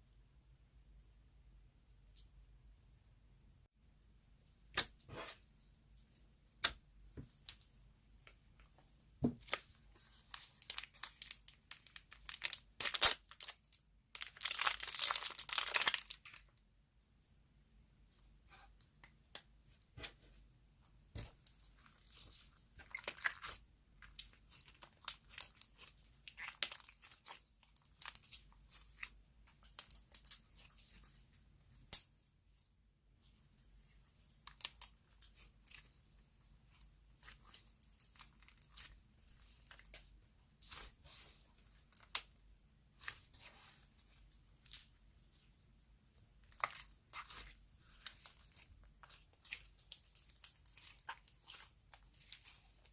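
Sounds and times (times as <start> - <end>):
sticky slime crackling and tearing: 10.4 - 16.4, 24.2 - 31.0, 46.5 - 52.9.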